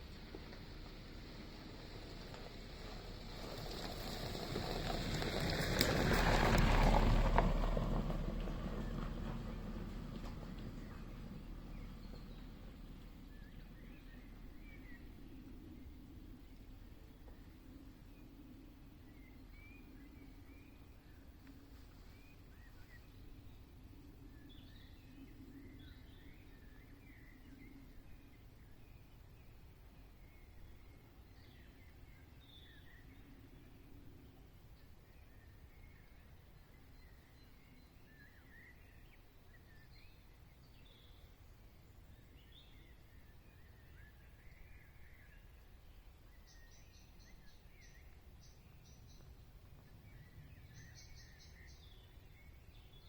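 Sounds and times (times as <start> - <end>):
low steady background rumble: 0.0 - 53.0
faint songbird chirps and warbling: 8.8 - 53.0
songbird twittering: 34.8 - 53.0.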